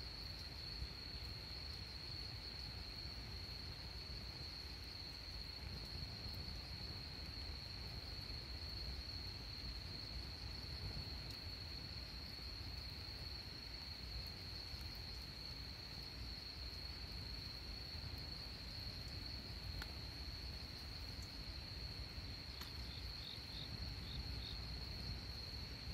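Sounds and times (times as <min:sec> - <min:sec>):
faint ticks: 0:00.0 - 0:03.6, 0:10.6 - 0:13.0, 0:14.0 - 0:21.5, 0:22.5 - 0:23.4.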